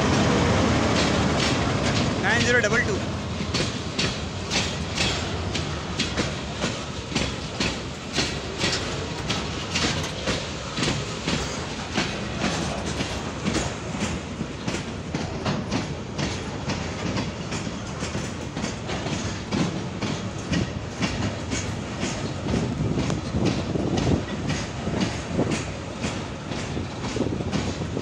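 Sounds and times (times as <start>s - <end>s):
train rumble: 0.0s - 28.0s
train wheels clicking over rail joints: 0.0s - 28.0s.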